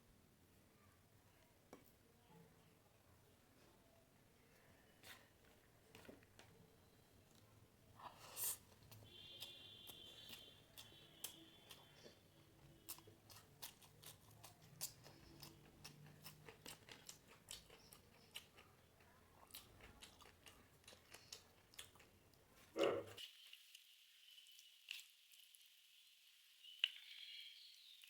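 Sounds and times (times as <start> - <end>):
person chewing crunchy food: 8.1 - 18.7, 19.4 - 23.3.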